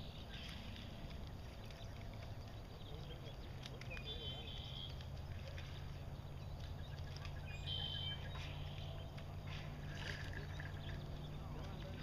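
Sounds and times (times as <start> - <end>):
steady low rumble: 0.0 - 12.0
songbird high-pitched call: 1.6 - 11.7.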